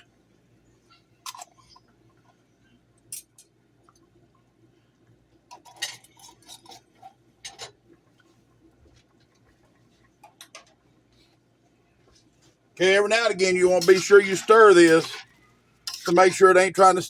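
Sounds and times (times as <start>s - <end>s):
metal utensils clinking on jars: 13.8s - 16.4s.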